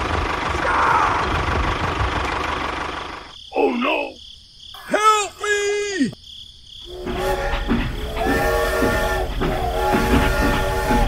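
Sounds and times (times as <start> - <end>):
tractor engine running: 0.0 - 3.4, 6.8 - 11.0.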